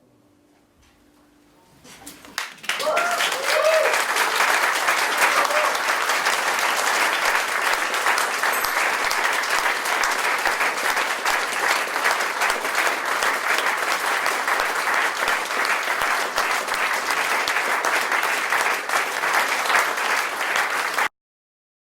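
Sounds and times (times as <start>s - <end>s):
audience applauding: 2.3s - 21.1s.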